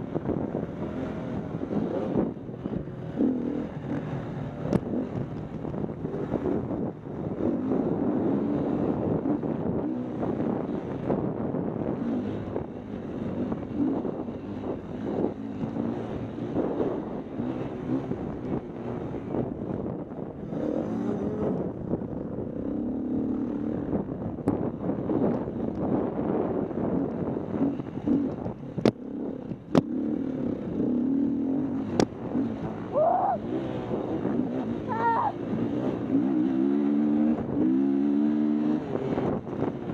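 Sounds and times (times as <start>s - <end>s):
motorcycle engine revving: 0.0s - 39.9s
wind buffeting microphone: 0.0s - 39.9s
dirt bike engine revving: 20.4s - 21.8s, 29.0s - 39.9s.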